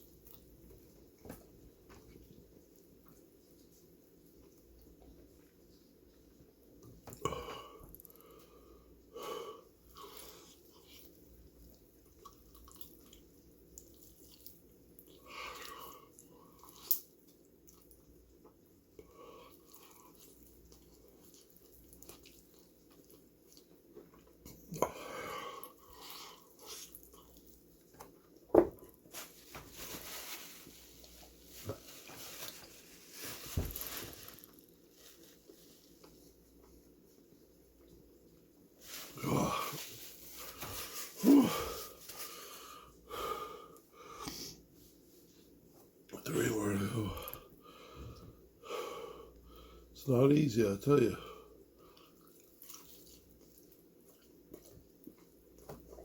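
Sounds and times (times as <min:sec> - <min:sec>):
man chewing food: 0:00.0 - 0:29.1, 0:51.4 - 0:56.0
man wheezing hissing breaths: 0:40.6 - 0:44.6.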